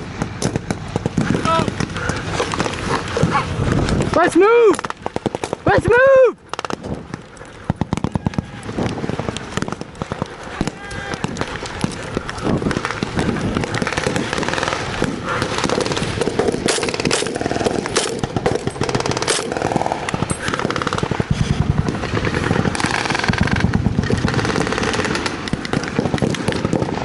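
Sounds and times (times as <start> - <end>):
machine gun and rifle bursts: 9.2 - 27.0.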